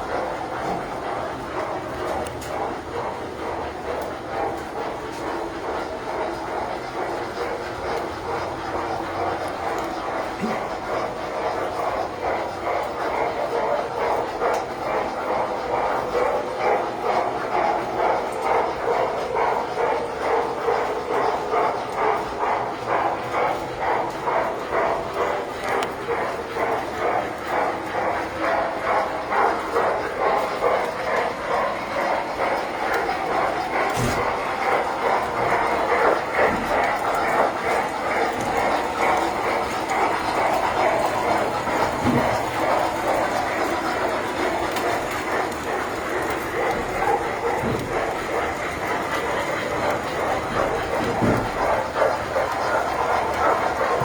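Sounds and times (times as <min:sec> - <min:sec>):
toy trains clattering: 0:23.9 - 0:54.0.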